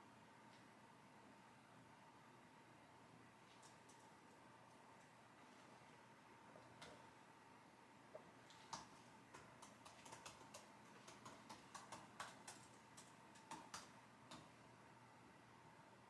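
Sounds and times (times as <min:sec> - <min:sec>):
typing on computer keyboard: 0:08.7 - 0:14.5.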